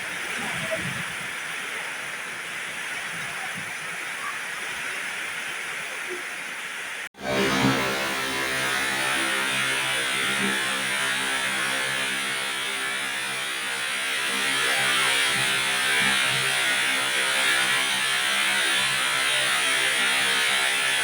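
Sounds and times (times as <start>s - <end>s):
strong wind: 0.0s - 6.0s
heavy rain pouring: 0.0s - 21.0s.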